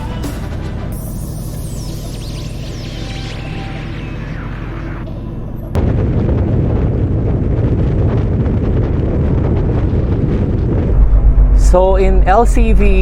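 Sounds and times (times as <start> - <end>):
background music: 0.0 - 2.7
semi truck rumbling on road: 0.0 - 5.8.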